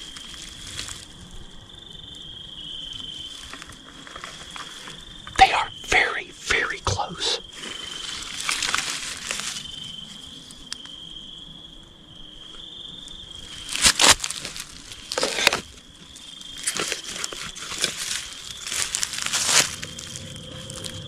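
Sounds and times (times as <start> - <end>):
rustling crunches: 0.0 - 1.6, 2.6 - 5.6, 7.4 - 10.9, 13.0 - 21.0
night insects trilling: 0.0 - 21.0.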